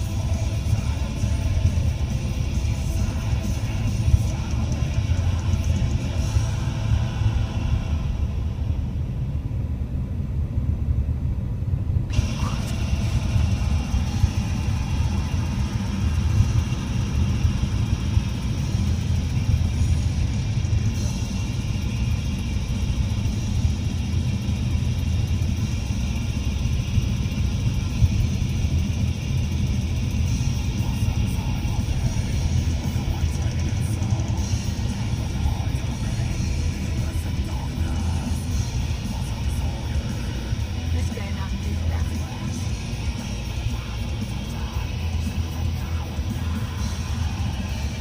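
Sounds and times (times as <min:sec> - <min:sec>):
guitar rock music: 0:00.0 - 0:09.0, 0:12.1 - 0:48.0
car engine and tyres rumbling: 0:00.0 - 0:48.0.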